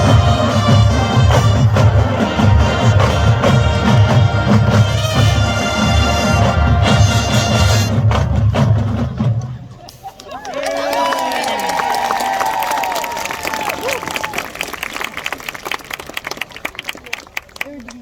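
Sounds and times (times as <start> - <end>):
marching bands playing: 0.0 - 10.0
drums pulsing: 0.0 - 10.2.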